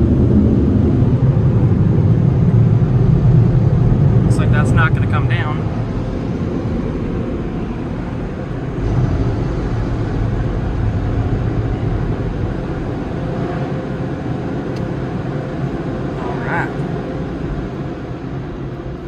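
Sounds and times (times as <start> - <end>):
car wash equipment rushing: 8.0 - 17.8.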